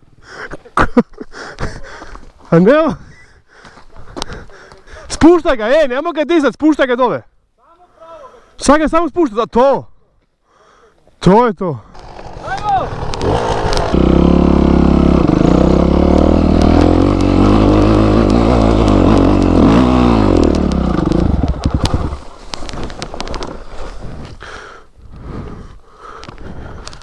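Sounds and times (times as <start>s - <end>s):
motorcycle engine revving: 11.9s - 24.0s.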